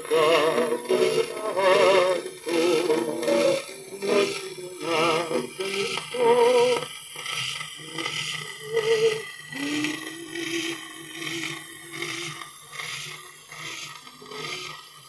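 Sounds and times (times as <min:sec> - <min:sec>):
old record instrumental music: 0:00.0 - 0:06.4.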